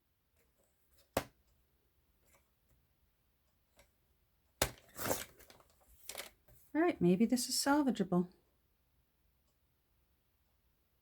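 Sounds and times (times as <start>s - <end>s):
paper rustle: 4.7s - 6.7s.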